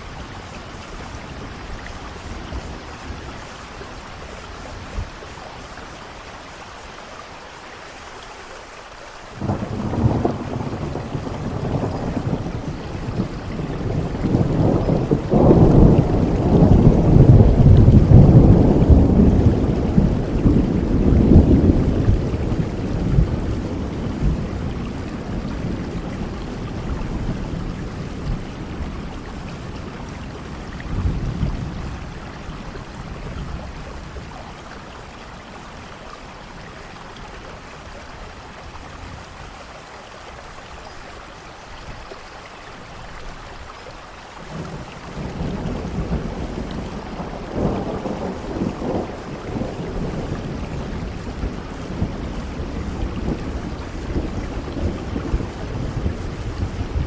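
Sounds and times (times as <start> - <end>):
steady rain: 0.0 - 57.0
thunder rumble: 9.4 - 35.0, 44.5 - 57.0.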